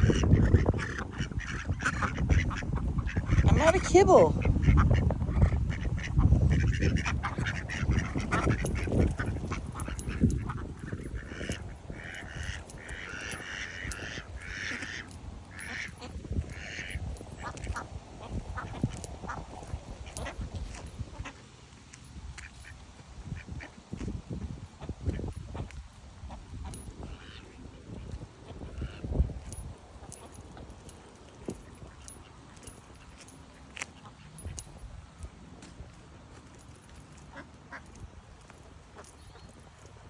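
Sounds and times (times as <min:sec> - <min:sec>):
ducks quacking: 0:00.0 - 0:21.4, 0:37.1 - 0:38.0.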